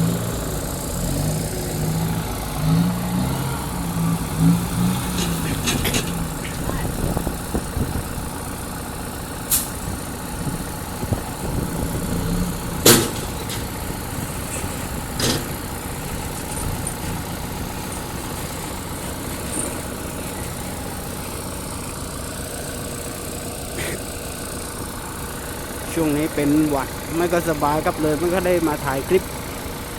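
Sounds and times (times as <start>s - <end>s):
heavy diesel engine running: 0.0s - 29.9s
sharp knocks: 12.8s - 13.7s.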